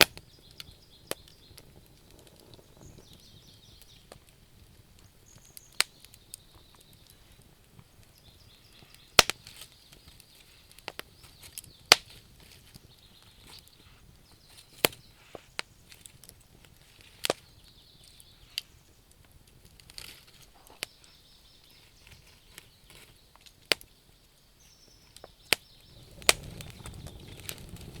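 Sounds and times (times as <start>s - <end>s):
sharp wood pops: 0.0s - 3.2s, 5.0s - 7.9s, 8.8s - 17.4s, 21.8s - 23.9s, 25.2s - 28.0s
campfire crackling: 0.0s - 28.0s.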